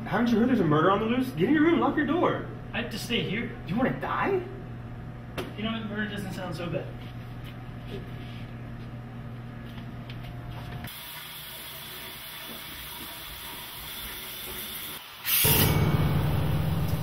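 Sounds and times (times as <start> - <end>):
shower water spraying: 10.9 - 15.9
loud burst of noise: 15.0 - 17.0
low steady hum: 15.6 - 17.0.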